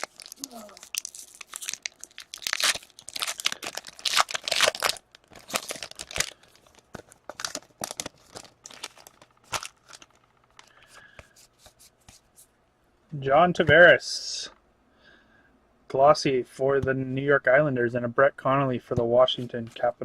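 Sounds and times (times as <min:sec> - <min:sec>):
foil wrapper tearing and crinkling: 0:00.0 - 0:10.7.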